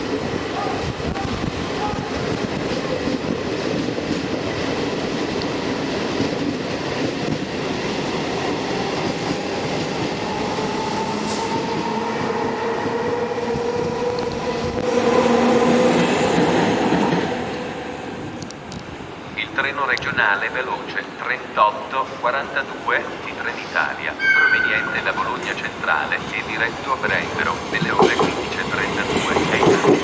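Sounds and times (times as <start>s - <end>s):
train whine: 0.0s - 19.6s, 22.3s - 30.0s
train wheels rumbling on rails: 0.0s - 21.2s, 22.7s - 30.0s.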